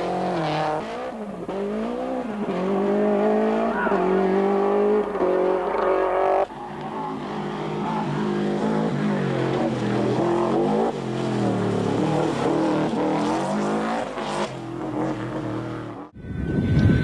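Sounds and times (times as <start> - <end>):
rally car engine revving: 0.0 - 16.1.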